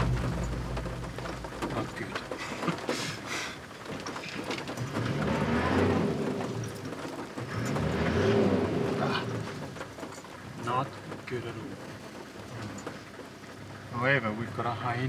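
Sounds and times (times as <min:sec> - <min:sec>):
hiss of spinning wheels: 0:02.3 - 0:03.7
engine revving hard: 0:04.8 - 0:06.5, 0:07.5 - 0:09.3.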